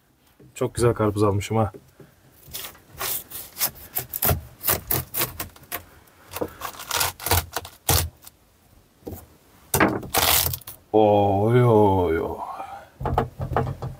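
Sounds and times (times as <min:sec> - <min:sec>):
knife cutting watermelon: 0:02.5 - 0:05.8.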